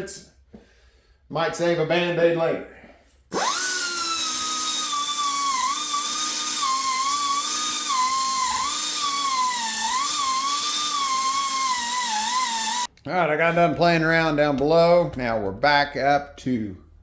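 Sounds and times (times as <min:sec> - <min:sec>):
die grinder whining on metal: 0:03.3 - 0:12.9.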